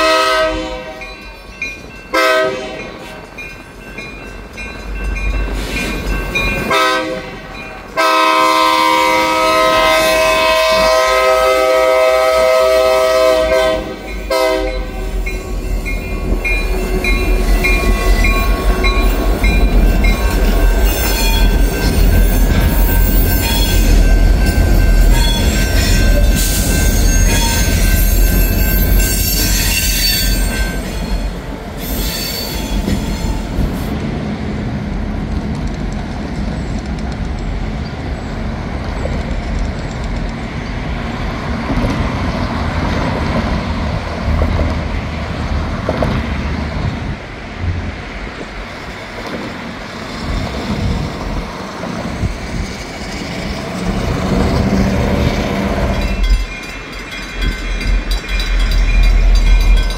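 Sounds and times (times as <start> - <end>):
train horn: 0.0 - 1.1, 2.1 - 3.2, 6.7 - 15.3
crossing bell dinging: 0.0 - 8.4, 13.3 - 33.6, 53.8 - 59.9
wheels squealing on rails: 0.0 - 34.0, 35.8 - 47.2, 48.6 - 59.9
diesel locomotives rumbling: 0.0 - 59.9.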